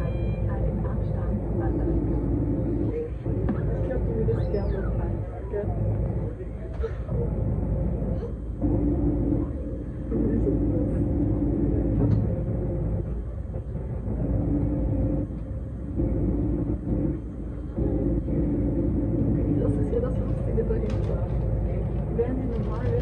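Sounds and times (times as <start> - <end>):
low hum: 0.0 - 23.0
train wheels rumbling on track: 0.0 - 23.0.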